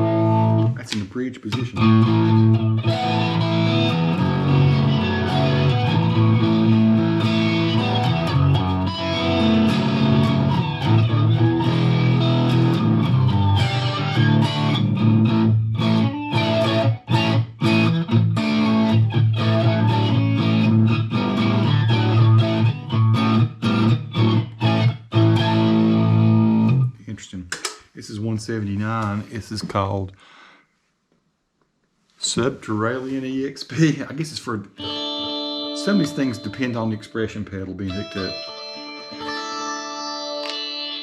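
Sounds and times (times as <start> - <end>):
distorted electric guitar chords: 0.0 - 0.8, 1.5 - 26.9, 34.8 - 41.0
short clipped guitar chords: 0.0 - 26.9, 34.7 - 41.0.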